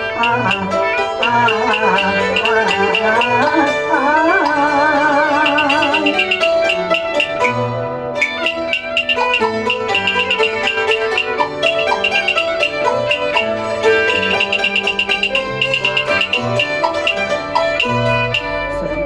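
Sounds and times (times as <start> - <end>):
bowed strings: 0.0 - 19.0
quick plucked string notes: 0.0 - 19.0
low held notes: 8.2 - 19.0.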